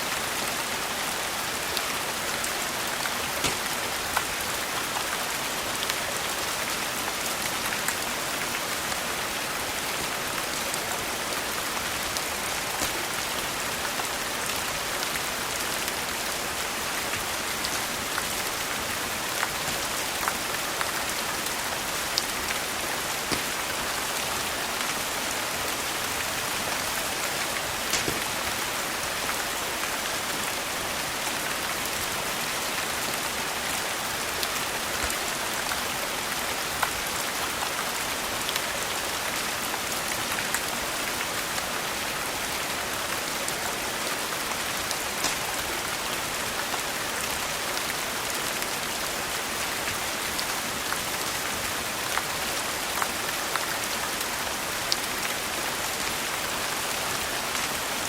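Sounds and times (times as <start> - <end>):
steady rain: 0.0 - 58.0
wood fire crackling: 2.8 - 4.8, 11.5 - 14.0, 18.2 - 29.6, 44.9 - 46.2.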